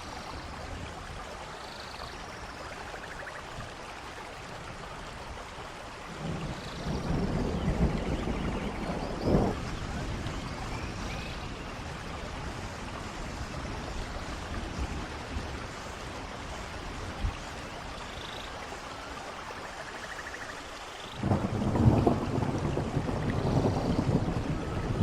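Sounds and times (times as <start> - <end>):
rain falling: 0.0 - 25.0
low rumble of thunder: 6.1 - 17.4, 21.2 - 25.0.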